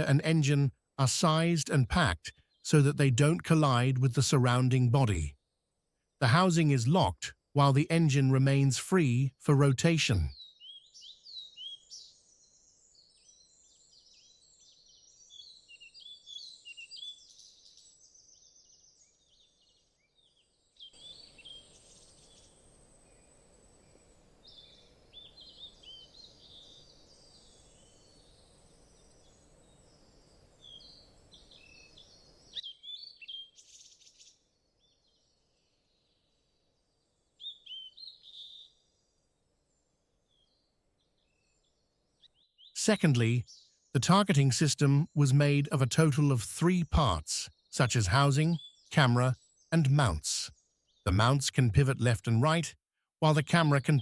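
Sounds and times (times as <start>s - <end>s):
small birds chirping: 0.0s - 5.4s, 10.0s - 45.7s, 46.9s - 52.6s.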